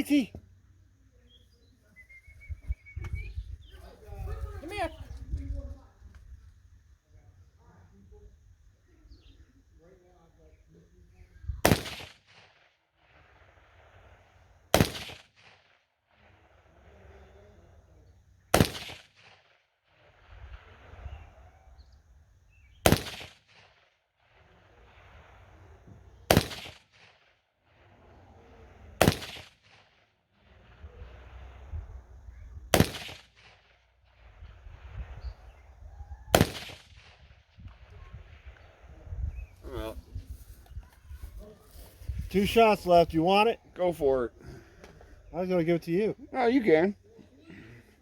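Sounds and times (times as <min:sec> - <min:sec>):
gunshots with echo: 0:11.6 - 0:12.4, 0:14.7 - 0:15.6, 0:18.5 - 0:19.3, 0:22.8 - 0:23.7, 0:26.3 - 0:27.2, 0:29.0 - 0:29.8, 0:32.7 - 0:33.6, 0:36.3 - 0:37.3.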